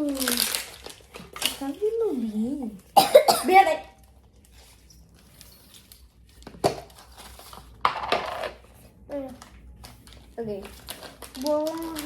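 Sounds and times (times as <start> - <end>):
packaging rustle: 0.0 - 2.9, 9.4 - 12.0.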